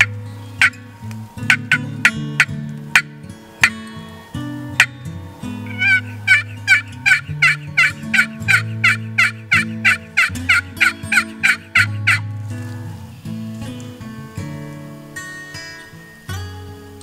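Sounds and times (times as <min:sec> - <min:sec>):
turkey yelps: 0:00.0 - 0:03.8, 0:05.6 - 0:12.3
background guitar music: 0:00.0 - 0:17.0.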